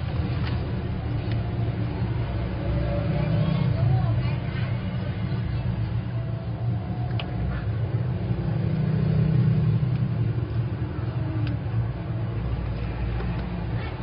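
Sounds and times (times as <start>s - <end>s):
faint clicks: 7.1s - 7.4s.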